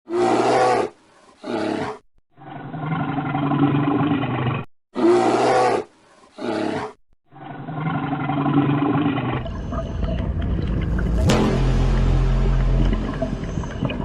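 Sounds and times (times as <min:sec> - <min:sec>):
deep animal roars: 0:00.1 - 0:05.8, 0:06.4 - 0:11.3.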